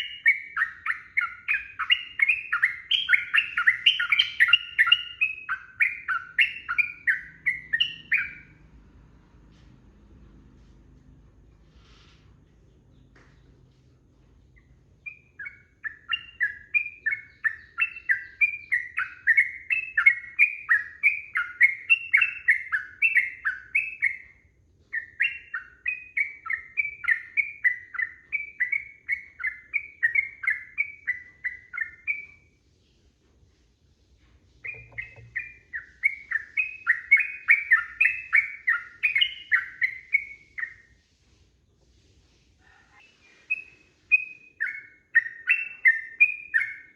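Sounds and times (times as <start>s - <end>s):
bird chattering song: 0.0s - 8.6s, 14.5s - 32.5s, 34.6s - 40.9s, 42.8s - 46.9s.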